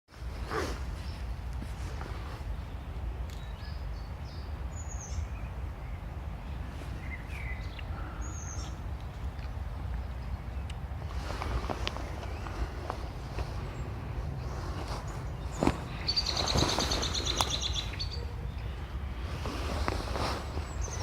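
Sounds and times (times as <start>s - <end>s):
birds chirping: 0.2s - 21.0s
steady low rumble: 0.2s - 21.0s.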